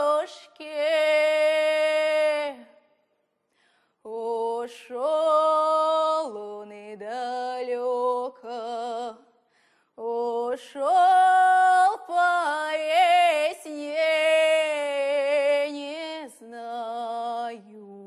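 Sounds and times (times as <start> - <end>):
woman singing folk song: 0.0 - 2.8, 4.0 - 18.0.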